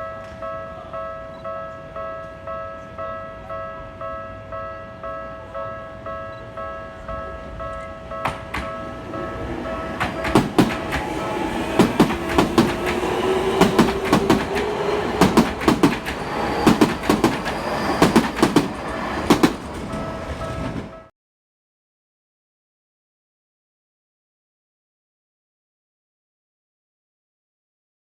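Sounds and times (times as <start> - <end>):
crossing warning bell ringing: 0.0 - 21.1
electric train whine: 3.0 - 21.1
train wheels clacking over rail joints: 8.2 - 21.0.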